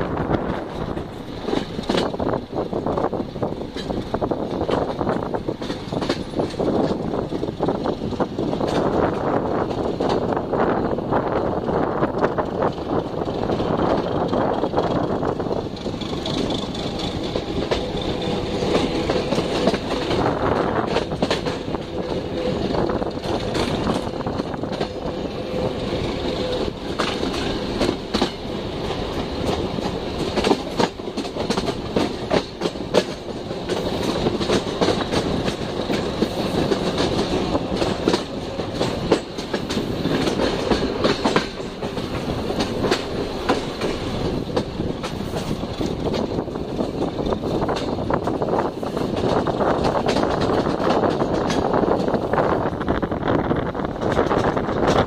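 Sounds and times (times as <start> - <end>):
rail joint clicks and knocks: 0.0 - 55.0
train wheels rumbling on track: 0.0 - 55.0.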